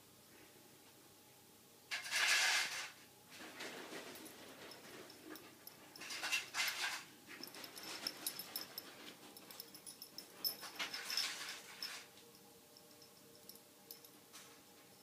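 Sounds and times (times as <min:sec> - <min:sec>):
collar bell jingling: 0:04.0 - 0:15.0.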